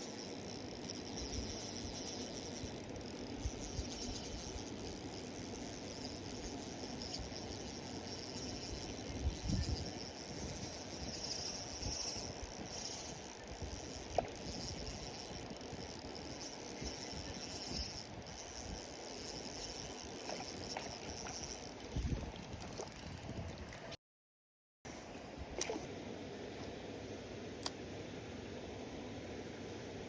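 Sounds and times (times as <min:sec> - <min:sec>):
high-pitched insect buzz: 0:00.0 - 0:22.0.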